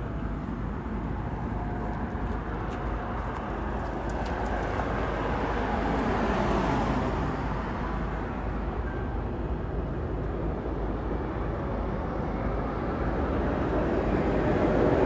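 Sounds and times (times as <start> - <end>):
jet airliner engine noise: 7.8 - 15.0.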